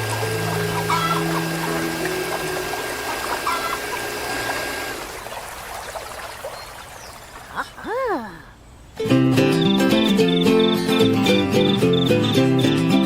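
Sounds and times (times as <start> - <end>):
music: 0.0 - 3.8, 9.0 - 13.0
water trickling and pouring: 0.0 - 7.9.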